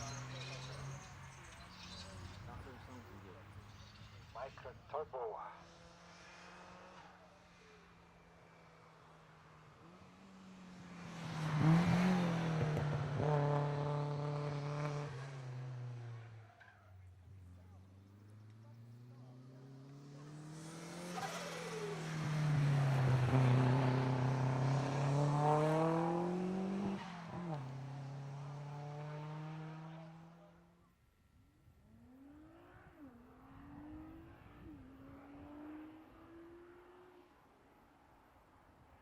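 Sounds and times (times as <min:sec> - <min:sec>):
car engine revving past: 0:05.6 - 0:16.4, 0:17.4 - 0:30.7, 0:31.9 - 0:37.6.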